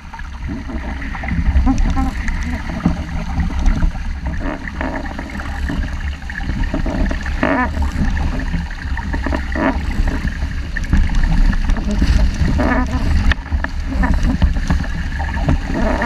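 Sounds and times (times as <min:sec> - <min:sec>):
water splashing along boat hull: 0:00.0 - 0:16.0.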